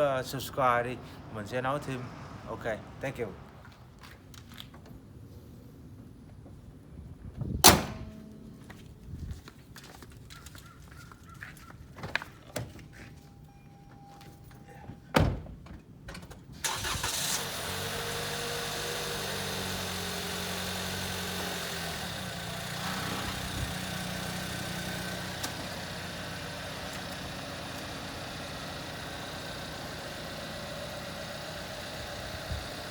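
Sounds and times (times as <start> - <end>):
car engine cranking and idling: 15.6 - 32.9.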